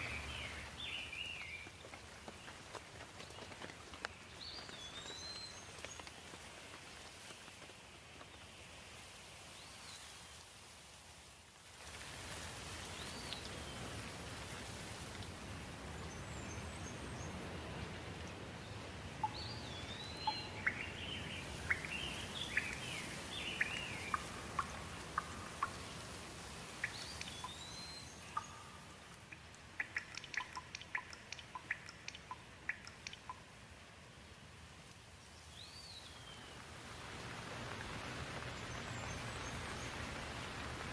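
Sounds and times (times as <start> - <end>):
birds singing: 0.0 - 1.8, 18.7 - 26.0, 26.8 - 28.8
flowing water: 10.2 - 40.9.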